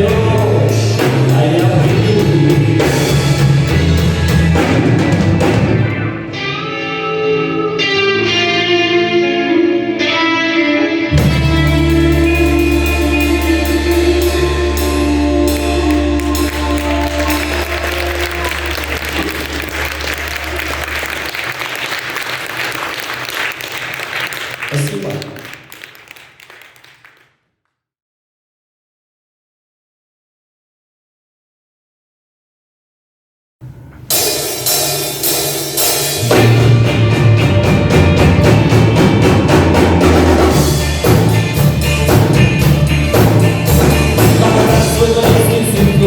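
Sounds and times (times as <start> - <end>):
drum kit steady beat: 0.0 - 5.9, 11.2 - 21.2, 34.1 - 46.0
bass and guitars: 0.0 - 24.9, 33.6 - 46.0
audience applauding: 15.5 - 27.4.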